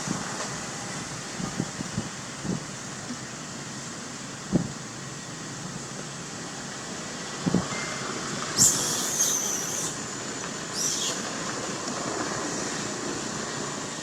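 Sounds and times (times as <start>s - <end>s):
steady background noise: 0.0s - 14.0s
monkey screeching: 8.6s - 10.0s, 10.7s - 11.2s.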